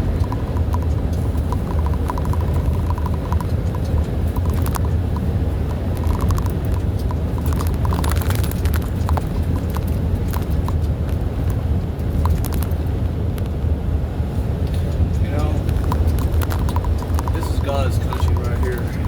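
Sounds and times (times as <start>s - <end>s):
clicks and rattles: 0.0s - 13.5s, 14.7s - 19.0s
truck engine drone: 0.0s - 19.0s.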